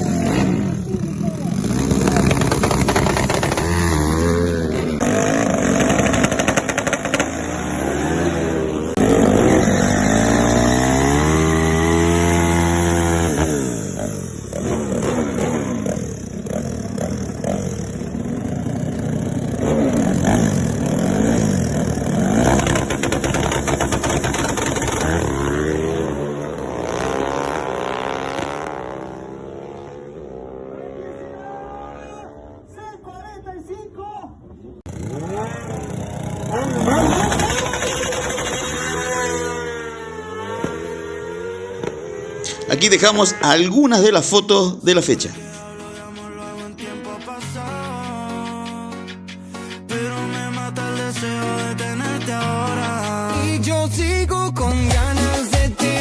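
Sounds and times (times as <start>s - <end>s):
motorcycle engines revving: 0.0s - 32.8s, 34.4s - 46.1s.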